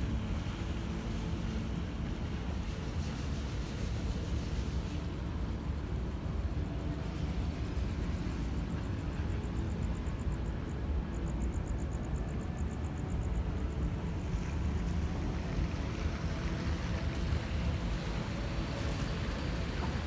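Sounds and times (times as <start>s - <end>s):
city traffic rumble: 10.4s - 20.0s.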